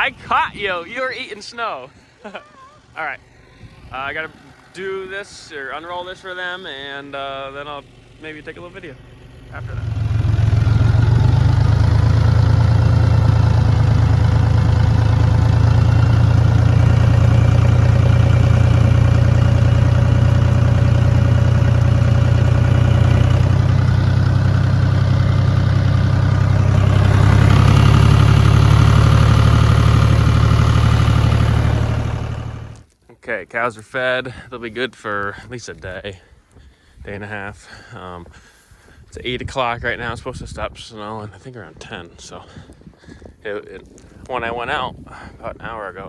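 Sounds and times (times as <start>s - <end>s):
farm vehicle engine running: 3.7s - 32.8s.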